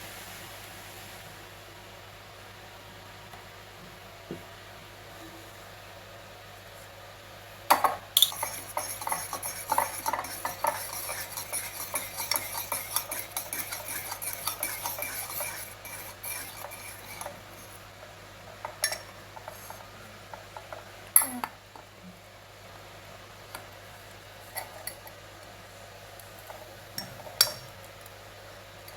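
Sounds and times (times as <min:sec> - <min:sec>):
cutlery stirring batter in mug: 0:08.2 - 0:17.8.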